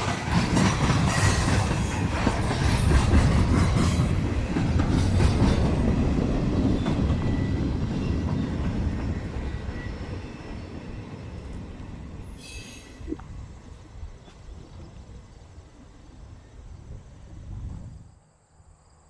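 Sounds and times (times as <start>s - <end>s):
train wheels clacking on rails: 0.0s - 13.4s
faint wheel squeal: 12.2s - 13.2s.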